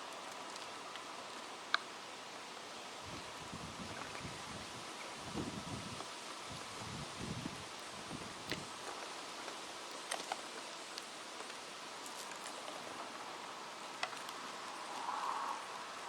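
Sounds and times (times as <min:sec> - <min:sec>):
wind rustling leaves: 0:00.0 - 0:16.0
faint ticks: 0:07.7 - 0:13.2.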